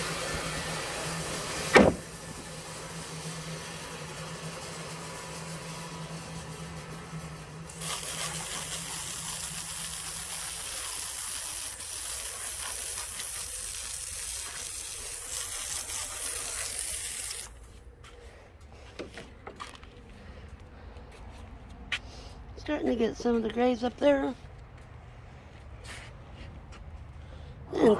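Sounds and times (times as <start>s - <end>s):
engine running: 0.0s - 25.7s
loud spray hiss: 7.7s - 17.6s.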